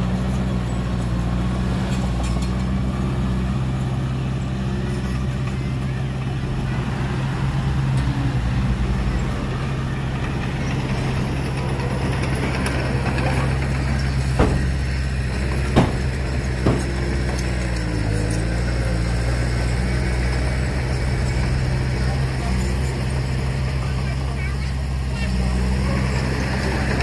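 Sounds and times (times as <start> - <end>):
diesel engine idling: 0.0 - 27.0
sharp metallic knocks: 11.2 - 17.8.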